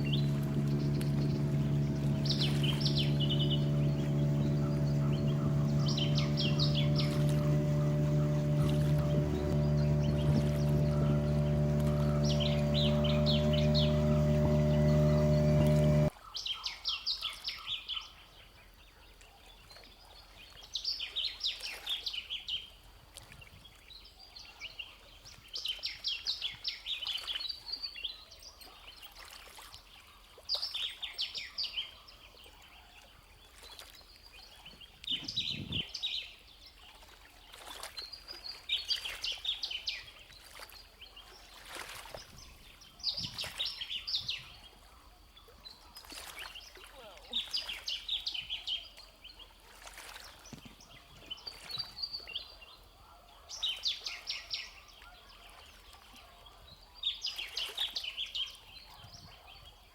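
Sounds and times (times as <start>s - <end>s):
faint outdoor background: 0.0s - 16.1s
songbird chirping: 0.0s - 16.1s.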